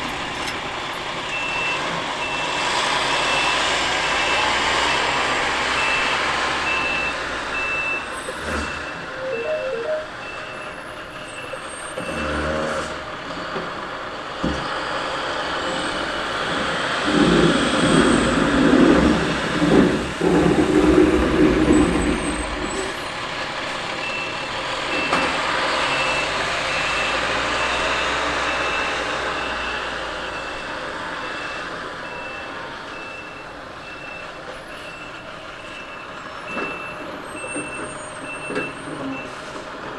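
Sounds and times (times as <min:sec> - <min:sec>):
reversing alarm beeping: 0:05.7 - 0:12.3, 0:24.0 - 0:39.4.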